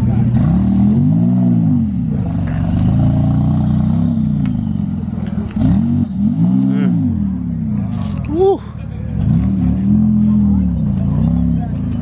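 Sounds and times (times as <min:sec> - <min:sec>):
car engine revving in blips: 0:00.0 - 0:08.3.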